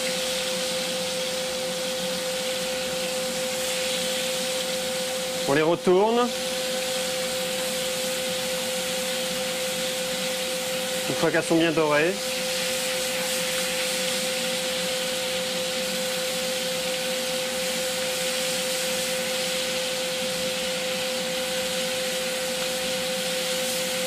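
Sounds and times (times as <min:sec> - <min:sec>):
food sizzling in a frying pan: 0:00.0 - 0:05.7, 0:06.3 - 0:24.0
steady hum: 0:00.0 - 0:24.0.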